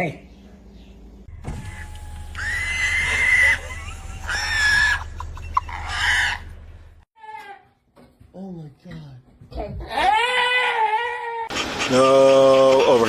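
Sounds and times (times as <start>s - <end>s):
animal crying: 2.4s - 6.6s, 9.9s - 13.0s.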